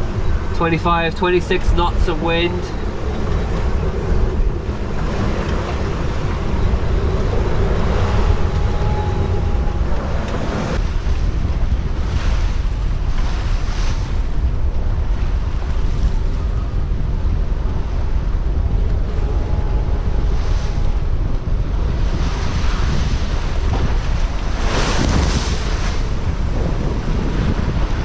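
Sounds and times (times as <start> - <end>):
rushing water surges: 0.0 - 15.9
breaking seas: 0.0 - 16.5, 17.6 - 28.0
wind buffeting microphone: 0.0 - 28.0.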